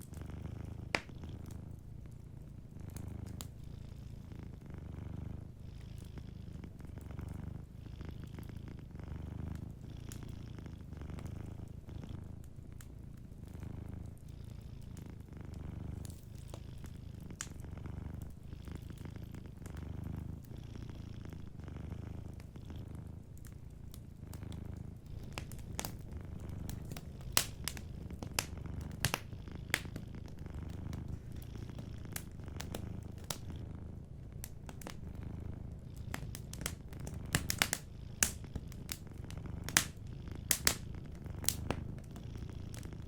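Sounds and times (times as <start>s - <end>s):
wood fire crackling: 0.0s - 3.6s, 14.9s - 43.0s
cat purring: 0.0s - 43.0s.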